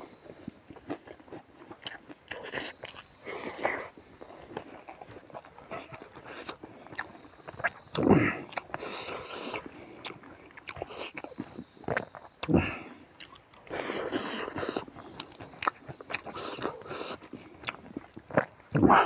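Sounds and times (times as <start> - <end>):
chewing and wet mouth clicks: 0.4 - 12.5, 13.1 - 18.9.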